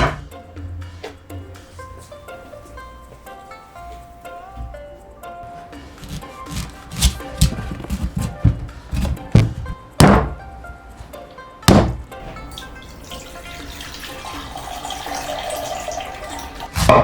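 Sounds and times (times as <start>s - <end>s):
background music: 0.0s - 17.0s
heavy thunks: 5.7s - 10.5s, 11.7s - 12.4s.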